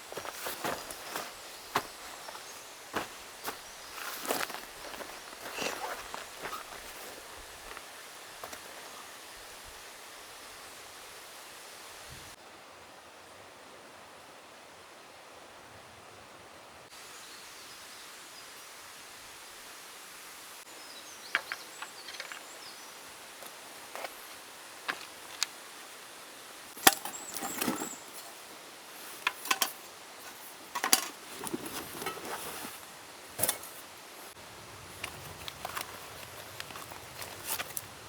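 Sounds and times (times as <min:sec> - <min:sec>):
rustling: 0:00.1 - 0:08.9, 0:26.7 - 0:38.0.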